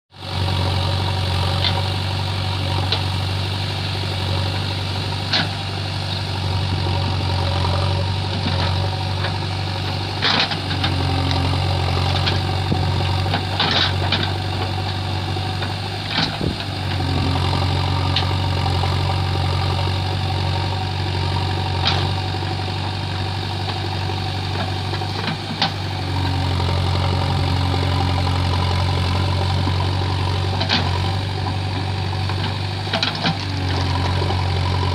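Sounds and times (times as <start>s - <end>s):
diesel engine running: 0.1s - 34.9s.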